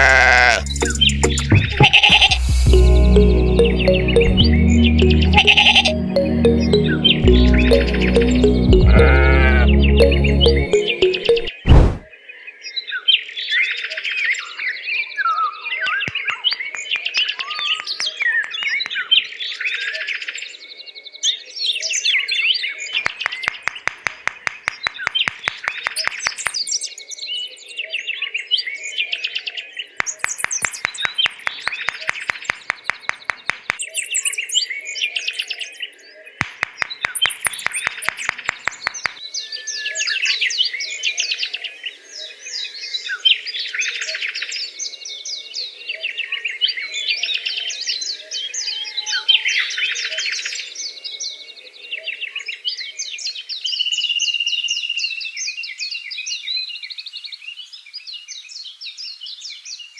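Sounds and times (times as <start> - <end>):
fast even clicking: 15.9 - 19.0, 23.0 - 26.6, 30.0 - 33.9, 36.4 - 39.2
small birds chirping and trilling: 15.9 - 19.0, 23.0 - 26.6, 30.0 - 34.2, 36.6 - 39.2.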